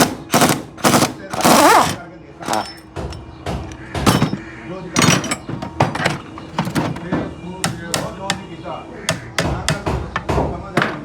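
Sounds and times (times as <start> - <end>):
hammer striking metal: 0.0 - 4.4, 5.0 - 7.0, 7.6 - 8.5, 9.1 - 10.0.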